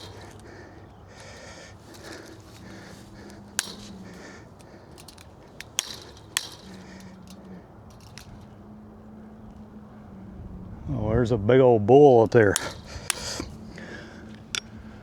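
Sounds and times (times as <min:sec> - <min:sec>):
hand tools clicking on metal: 0:00.0 - 0:08.7, 0:12.5 - 0:14.8.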